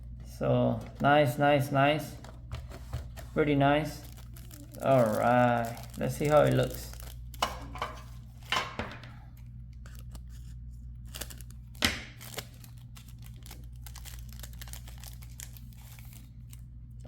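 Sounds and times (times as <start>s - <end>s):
steady low hum: 0.0s - 17.0s
cardboard packaging crinkling: 2.1s - 8.5s, 9.8s - 16.6s.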